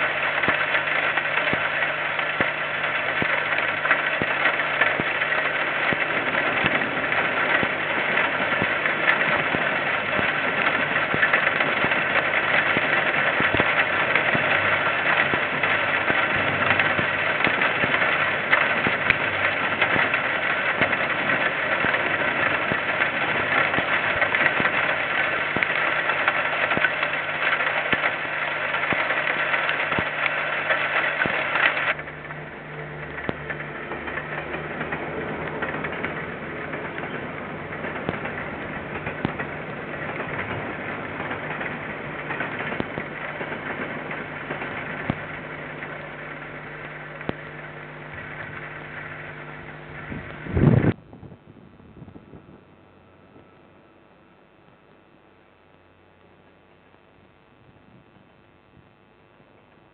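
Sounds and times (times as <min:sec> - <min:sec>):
diesel train passing: 0:30.2 - 0:46.4.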